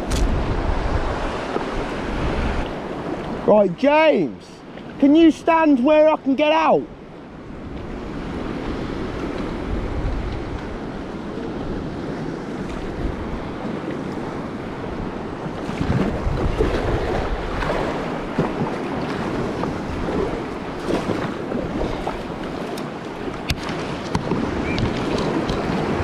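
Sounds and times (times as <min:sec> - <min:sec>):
wind buffeting microphone: 0:00.0 - 0:03.5, 0:07.0 - 0:26.0
sea waves breaking on rocks: 0:07.4 - 0:26.0.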